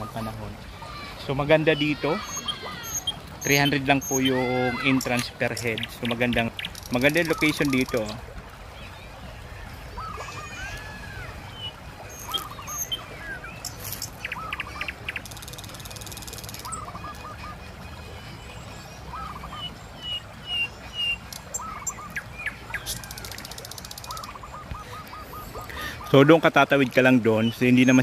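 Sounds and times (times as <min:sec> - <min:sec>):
bird calling in quick notes: 0:00.0 - 0:08.2, 0:10.0 - 0:18.3, 0:19.0 - 0:28.0
river rushing: 0:00.0 - 0:28.0
small birds chirping: 0:00.0 - 0:28.0.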